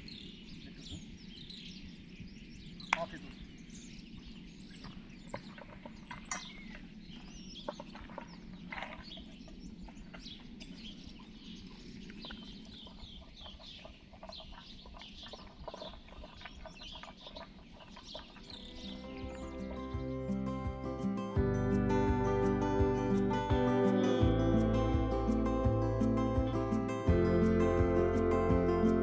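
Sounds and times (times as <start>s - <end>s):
small birds chirping: 0.0s - 29.0s
soft instrumental music: 18.6s - 29.0s
steady low rumble: 18.6s - 29.0s.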